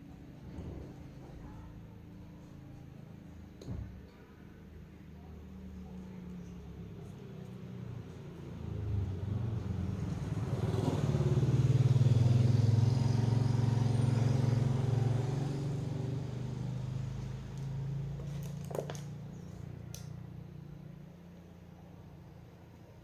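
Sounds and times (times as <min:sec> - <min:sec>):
motor vehicle engine hum: 0:05.2 - 0:23.0.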